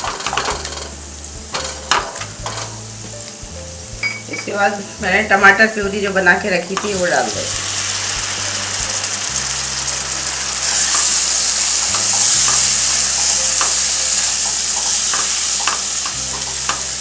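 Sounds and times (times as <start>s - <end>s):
spoon scraping and clicking on pan: 0.0s - 2.8s
puree sizzling in hot oil: 0.0s - 17.0s.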